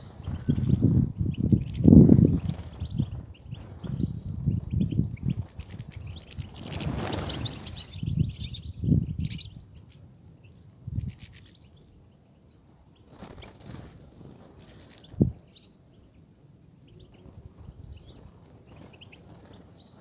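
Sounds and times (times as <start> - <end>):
finches twittering: 2.4 - 9.6.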